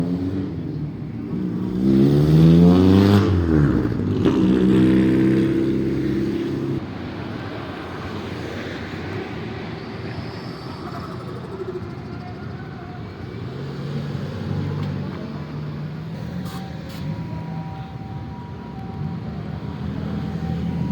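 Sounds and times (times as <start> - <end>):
car engine revving: 1.3 - 6.8.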